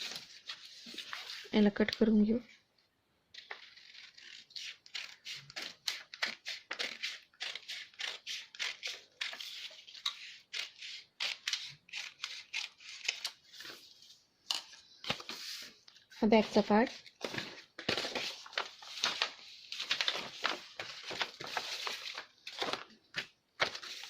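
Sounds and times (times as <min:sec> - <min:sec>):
scissors snipping paper: 0:03.4 - 0:13.4.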